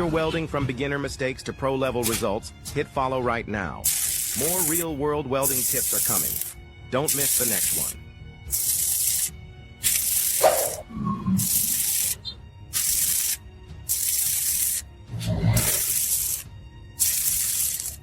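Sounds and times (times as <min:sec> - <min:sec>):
background music: 0:00.0 - 0:18.0
welding arc crackling: 0:03.9 - 0:10.8, 0:11.4 - 0:12.2, 0:12.8 - 0:14.9, 0:15.6 - 0:18.0.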